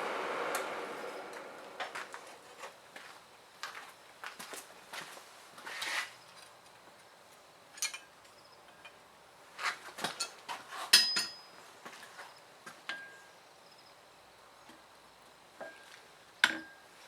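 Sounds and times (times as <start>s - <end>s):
light metal clinks and taps: 10.1s - 11.5s.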